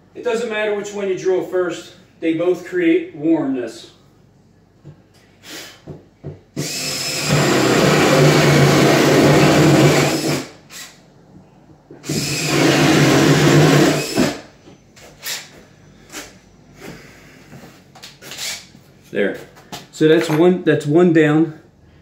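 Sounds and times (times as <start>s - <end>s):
power drill boring through wood: 6.6s - 10.9s, 12.0s - 14.4s.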